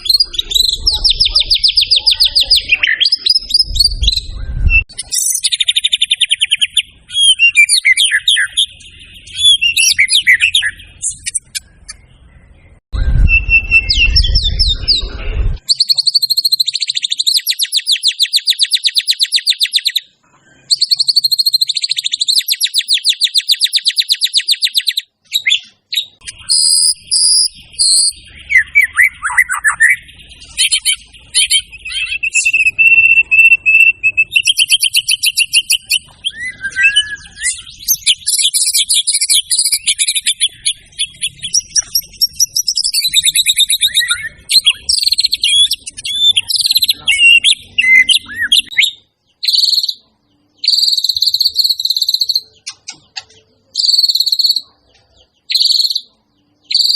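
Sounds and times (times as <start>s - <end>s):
bird singing trills: 0.0s - 56.9s
low rumble: 3.4s - 4.9s, 12.2s - 15.6s.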